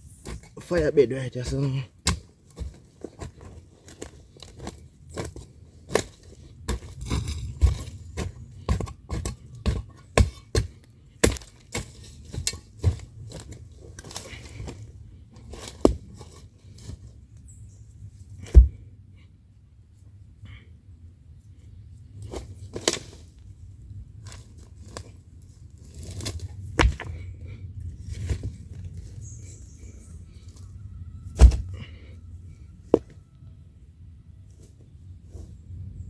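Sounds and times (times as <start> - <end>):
dry sticks snapping: 10.2 - 14.2.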